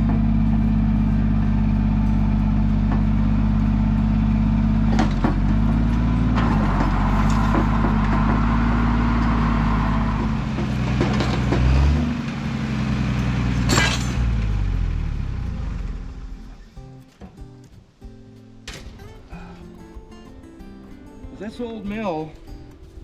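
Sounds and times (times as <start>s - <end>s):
large vehicle engine running: 0.0s - 16.8s
sharp metal clanks: 13.5s - 14.6s.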